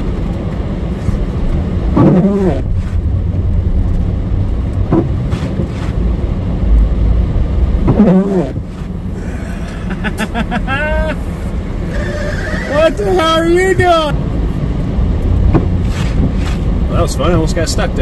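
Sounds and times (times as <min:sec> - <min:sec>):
car engine and road rumble: 0:00.0 - 0:18.0
short wavering voice-like sounds: 0:11.9 - 0:13.3.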